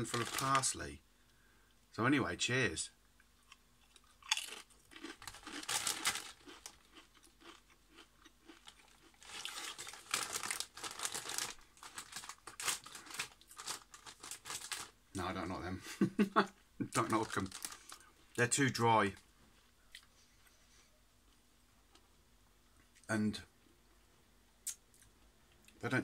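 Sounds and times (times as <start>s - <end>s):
crunchy chip chewing: 3.4s - 14.9s.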